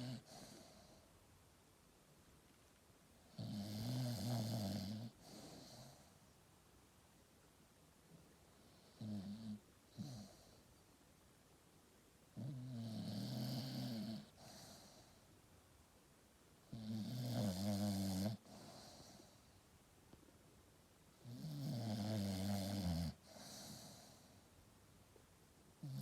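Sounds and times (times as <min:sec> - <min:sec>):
dog snoring: 0:00.0 - 0:01.1, 0:03.2 - 0:06.2, 0:08.6 - 0:10.6, 0:12.3 - 0:15.2, 0:16.6 - 0:19.5, 0:21.2 - 0:24.4, 0:25.8 - 0:26.0.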